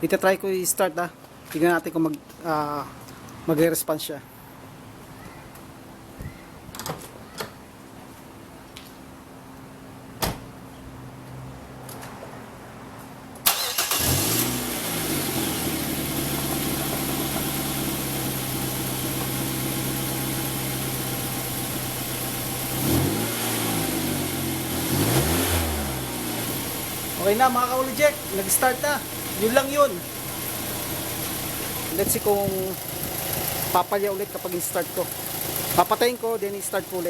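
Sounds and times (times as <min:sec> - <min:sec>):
car engine starting and idling: 0:13.4 - 0:37.0
engine revving: 0:13.5 - 0:19.0, 0:19.6 - 0:33.8.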